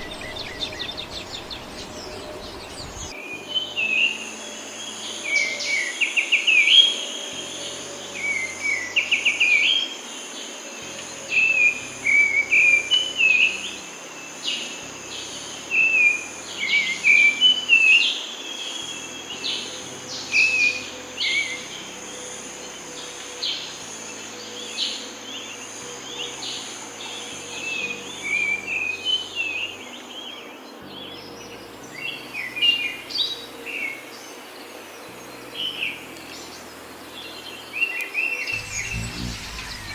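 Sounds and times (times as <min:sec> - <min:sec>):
small birds chirping: 0:00.0 - 0:04.2, 0:14.4 - 0:39.9
high pulsing insect drone: 0:00.0 - 0:39.9.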